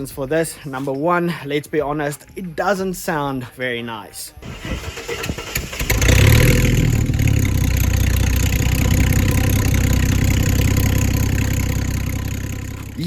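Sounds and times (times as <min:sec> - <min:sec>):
car exhaust idling: 0:04.4 - 0:13.0.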